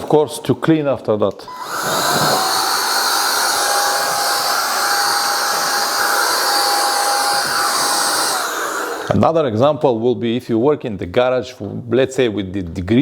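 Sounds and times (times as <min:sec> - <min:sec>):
blower motor whine and air rush: 0:01.5 - 0:09.2.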